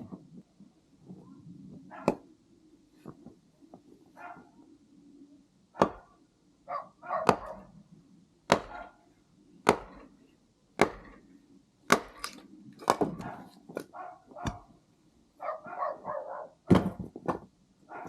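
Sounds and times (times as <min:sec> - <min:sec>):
axe chopping firewood: 0:02.0 - 0:02.3, 0:05.8 - 0:06.2, 0:07.2 - 0:07.6, 0:08.5 - 0:08.9, 0:09.6 - 0:10.2, 0:10.8 - 0:14.7, 0:16.7 - 0:17.5.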